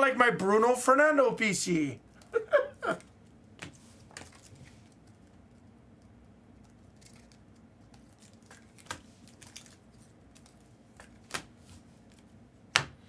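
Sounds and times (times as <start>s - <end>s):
trading cards rustling and clicking: 3.0s - 12.3s.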